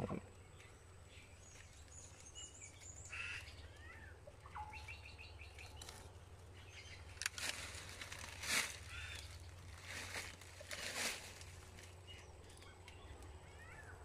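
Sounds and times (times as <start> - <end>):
wild birds chirping: 0.0 - 14.0.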